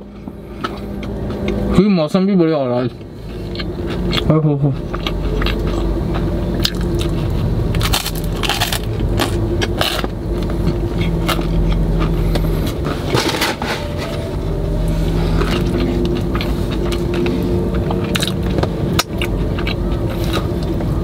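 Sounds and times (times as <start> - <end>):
chewing crunchy bread: 0.0 - 1.7, 2.8 - 14.2, 14.8 - 21.0
car cabin hum: 4.7 - 21.0.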